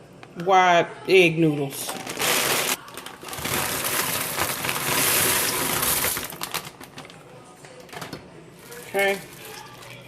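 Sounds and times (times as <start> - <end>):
dry noodles rattling into pot: 2.0 - 6.8.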